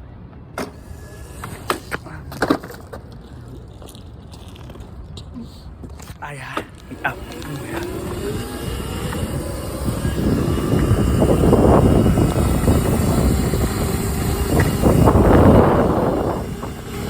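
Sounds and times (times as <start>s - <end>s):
wind rushing over microphone: 6.8s - 17.0s.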